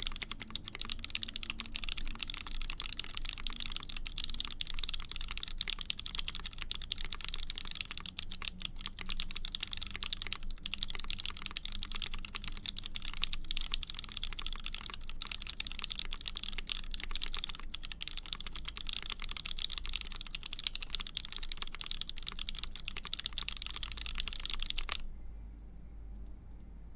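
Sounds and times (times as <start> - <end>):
fast typing on mechanical keyboard: 0.0 - 25.0.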